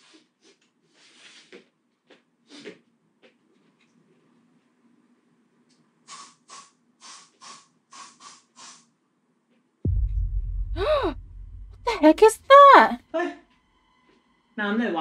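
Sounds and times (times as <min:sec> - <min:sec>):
aerosol spray can hissing: 0:06.1 - 0:08.9
deep low rumble: 0:09.9 - 0:12.0.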